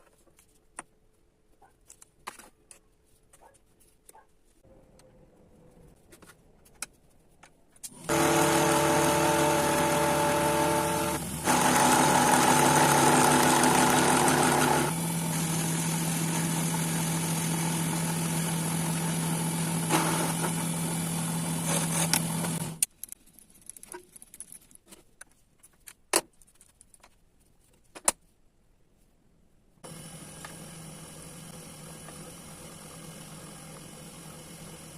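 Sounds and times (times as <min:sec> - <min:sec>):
lathe motor whining: 0:07.9 - 0:22.8, 0:29.8 - 0:34.9.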